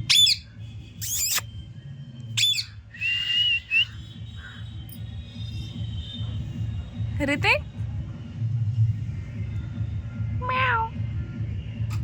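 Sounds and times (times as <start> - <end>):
parrot squawks: 0.0 - 1.4, 2.4 - 2.7, 10.4 - 10.9.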